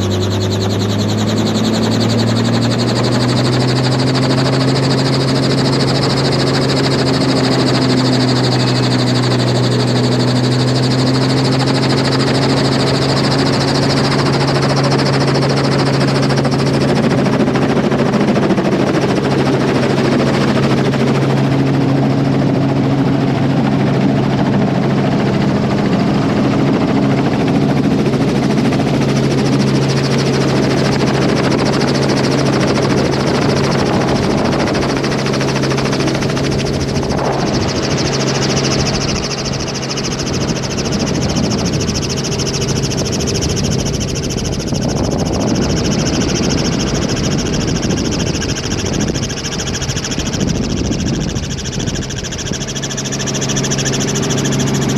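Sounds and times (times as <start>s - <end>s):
helicopter engine and rotor: 0.0s - 54.9s
low hums: 31.7s - 54.9s.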